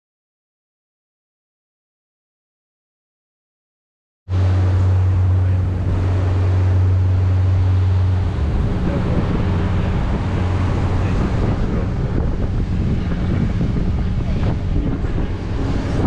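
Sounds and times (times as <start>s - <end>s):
motor boat engine: 4.3s - 16.0s
rushing water: 4.3s - 16.0s
wind buffeting microphone: 4.3s - 16.0s.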